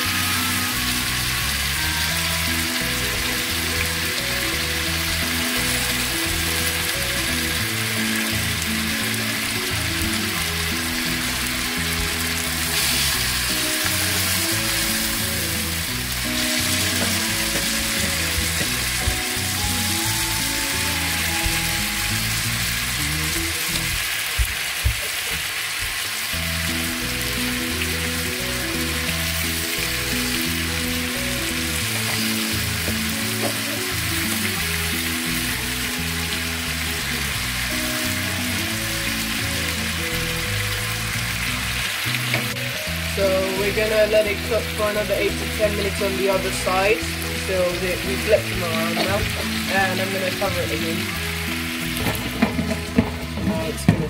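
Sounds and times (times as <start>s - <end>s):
background music: 0.0s - 54.0s
chicken sizzling in oil: 0.0s - 54.0s.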